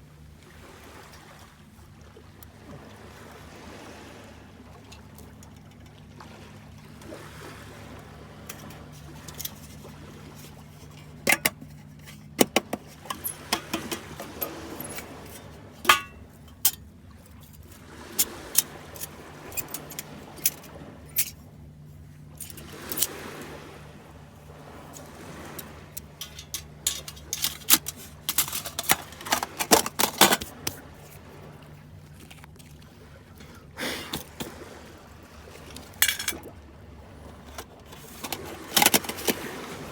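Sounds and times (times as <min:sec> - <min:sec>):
gear clicking and clinking: 0:08.5 - 0:21.4, 0:22.3 - 0:23.2, 0:24.9 - 0:31.2, 0:37.5 - 0:39.4.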